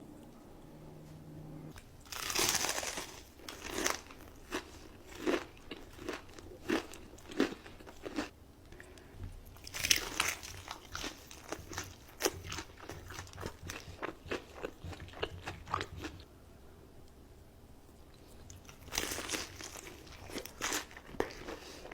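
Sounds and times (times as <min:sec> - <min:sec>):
person crunching crispy food: 0:02.0 - 0:08.3, 0:09.6 - 0:16.1, 0:18.6 - 0:21.9.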